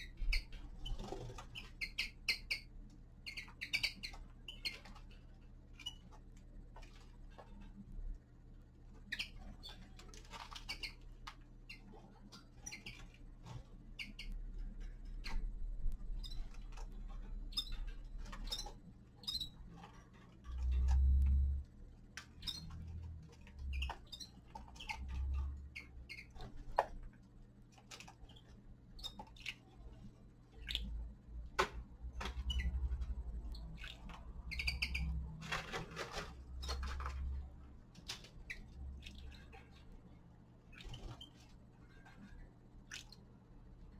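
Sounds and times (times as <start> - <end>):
finches chirping: 0.0 - 6.3, 9.0 - 14.4, 15.1 - 21.6, 22.3 - 27.0, 28.0 - 31.1, 32.3 - 35.8, 38.2 - 43.2.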